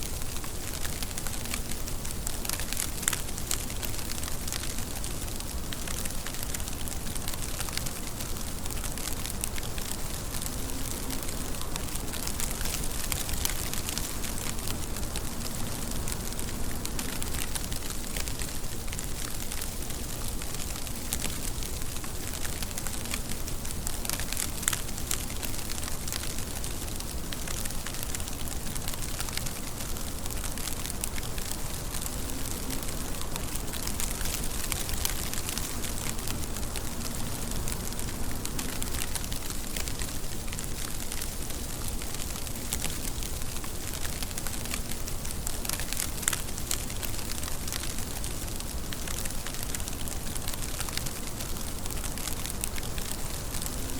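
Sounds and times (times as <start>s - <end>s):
steady rain: 0.0s - 53.9s.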